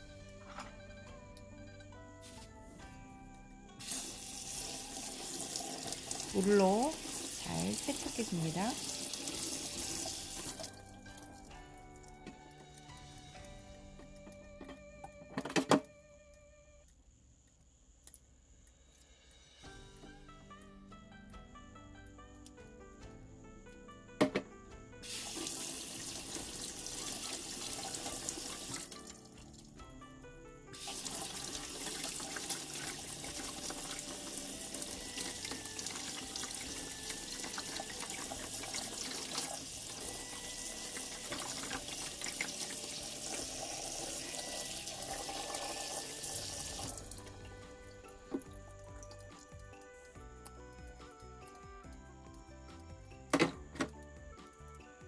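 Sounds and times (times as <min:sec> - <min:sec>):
tap water running into sink: 0:03.8 - 0:14.5, 0:25.0 - 0:29.6, 0:30.8 - 0:50.2.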